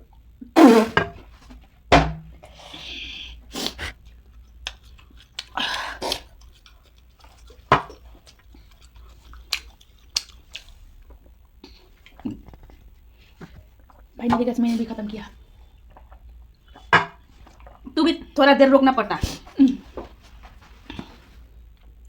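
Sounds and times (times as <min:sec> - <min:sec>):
mouth smacks: 0:02.4 - 0:14.1
crunchy snack chewing: 0:03.5 - 0:12.9.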